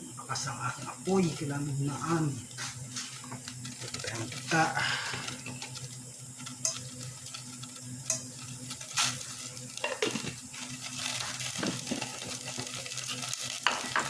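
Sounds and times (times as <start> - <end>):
food sizzling in hot oil: 1.0 - 14.0.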